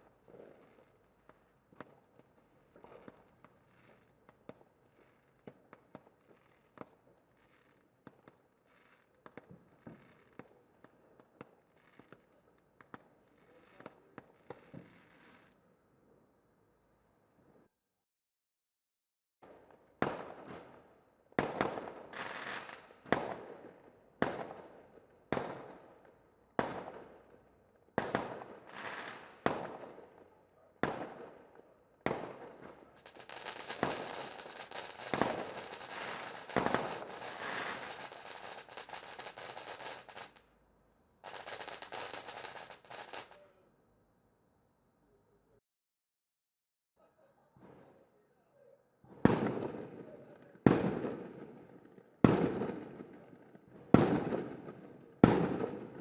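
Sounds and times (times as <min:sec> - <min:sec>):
fireworks crackling: 0:28.7 - 0:29.4, 0:32.4 - 0:40.5, 0:41.2 - 0:43.4
fireworks banging with echo: 0:32.1 - 0:40.4, 0:41.2 - 0:43.4.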